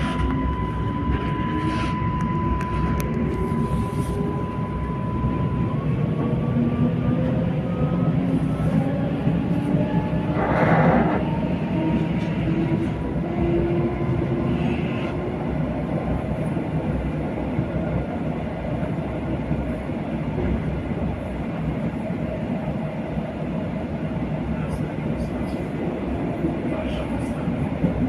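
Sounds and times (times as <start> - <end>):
train running on track: 0.0 - 28.0.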